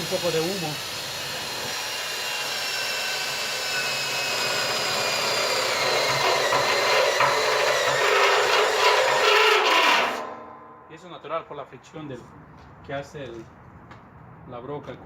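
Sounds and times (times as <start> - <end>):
electric drill grinding through steel: 0.0 - 10.6.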